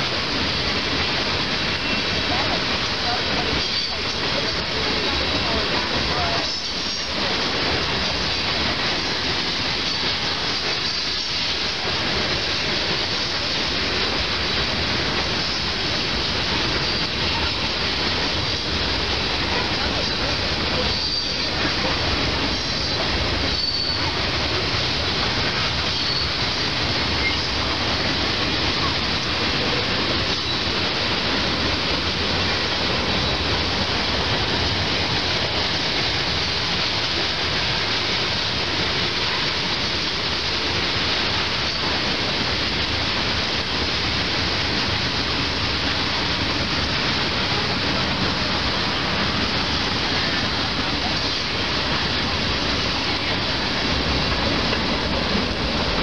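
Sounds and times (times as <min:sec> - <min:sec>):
train wheels rumbling on rail: 0:00.0 - 0:56.0
high wheel squeals: 0:22.7 - 0:24.2, 0:25.9 - 0:26.4.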